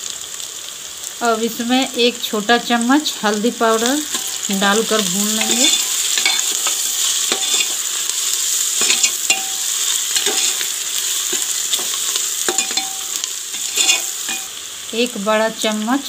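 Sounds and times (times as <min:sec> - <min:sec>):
vegetables sizzling in hot oil: 0:00.0 - 0:16.0
metal ladle scraping pot: 0:04.0 - 0:04.5, 0:05.2 - 0:14.6.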